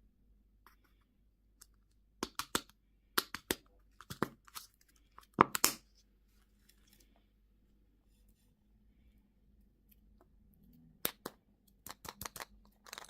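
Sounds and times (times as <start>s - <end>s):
candy wrapper tearing: 11.1s - 13.0s.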